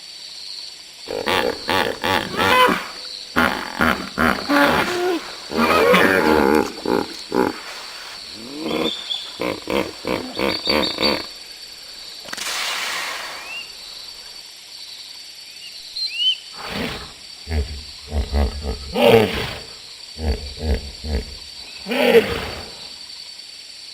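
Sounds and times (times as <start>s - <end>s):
breathy hiss: 1.0s - 15.4s, 16.5s - 23.9s
big cat grunting roars: 1.1s - 11.4s, 16.6s - 22.9s
faint bird chirps: 7.1s - 11.4s, 15.4s - 16.6s.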